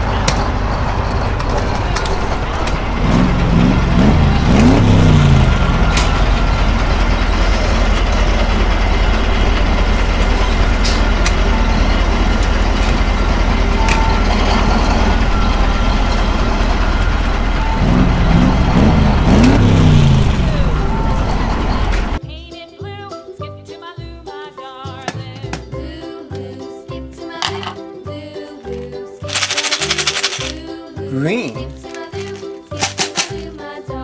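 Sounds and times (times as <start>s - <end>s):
large vehicle engine revving: 0.0s - 22.2s.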